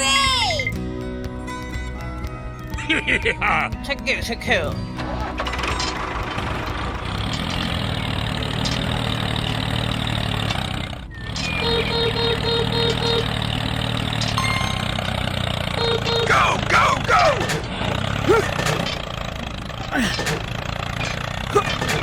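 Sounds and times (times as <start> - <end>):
small vehicle engine running: 4.7 - 22.0.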